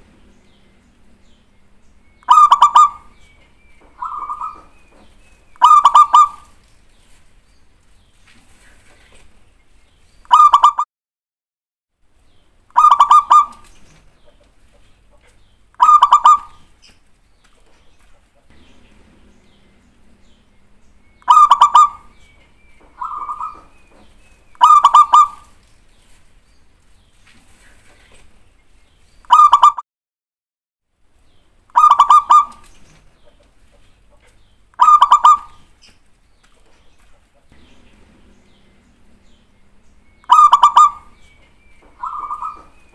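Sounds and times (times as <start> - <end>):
dove cooing: 0.0 - 6.6, 12.7 - 13.7, 15.8 - 16.7, 18.5 - 25.6, 29.3 - 29.8, 31.7 - 32.8, 34.8 - 35.7, 37.6 - 42.9.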